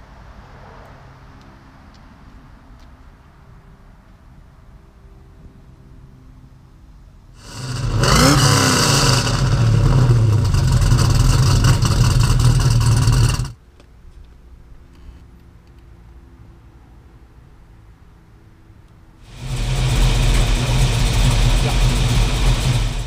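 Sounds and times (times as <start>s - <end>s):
car engine starting and revving: 7.4s - 13.6s, 19.3s - 23.0s
loud car exhaust running: 7.4s - 13.6s, 19.3s - 23.0s.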